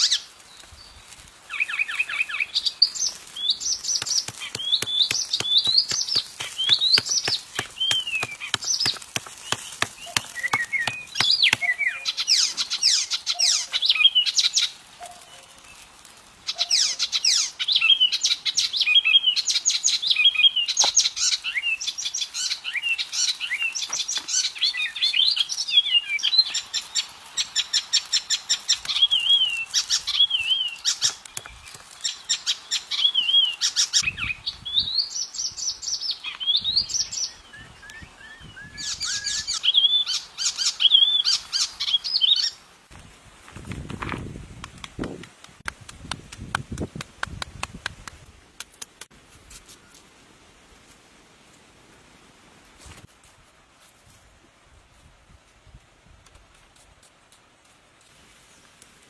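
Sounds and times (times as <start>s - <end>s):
songbirds chirping and twittering: 0.0s - 42.9s.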